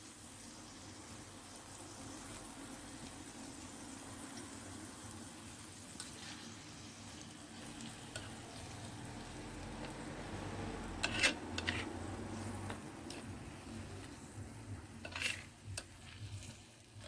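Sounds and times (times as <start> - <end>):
meat sizzling in oil: 0.0 - 17.0
stirring in a pot: 5.7 - 17.0.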